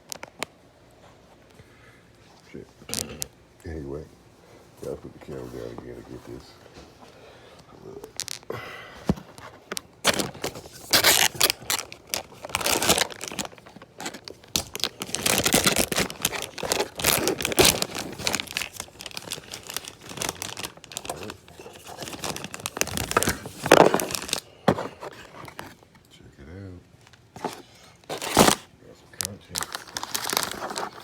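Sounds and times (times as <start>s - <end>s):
packaging crinkling and tearing: 2.9s - 3.3s, 7.9s - 8.6s, 9.3s - 25.8s, 27.1s - 31.0s.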